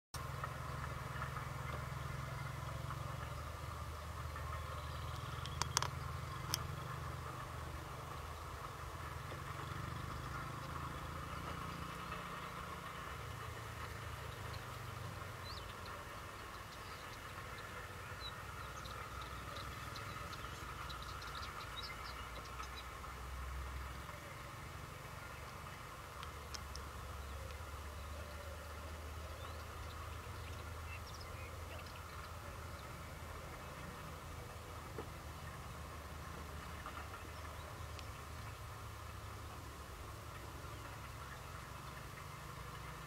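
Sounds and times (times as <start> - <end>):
low engine rumble idling: 0.2 - 43.0
sharp clicks: 5.1 - 6.7.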